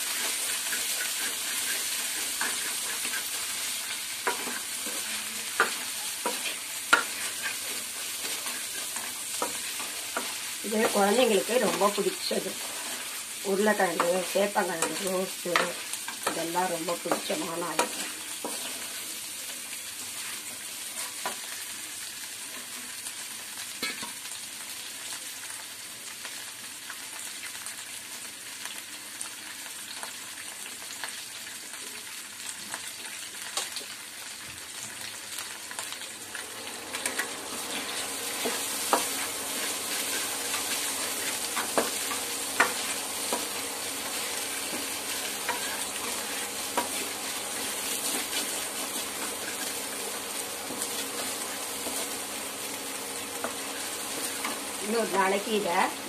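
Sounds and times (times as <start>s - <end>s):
spatula scraping pan: 0.0s - 19.2s, 37.0s - 52.4s
food sizzling in oil: 0.0s - 56.0s.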